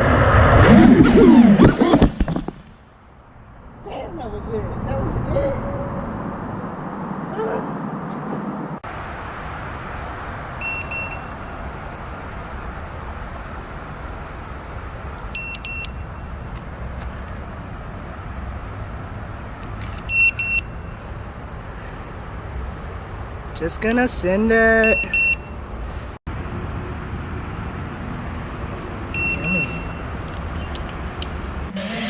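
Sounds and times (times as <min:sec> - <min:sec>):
outdoor background noise: 0:00.0 - 0:32.0
short high electronic beeps: 0:29.2 - 0:30.7.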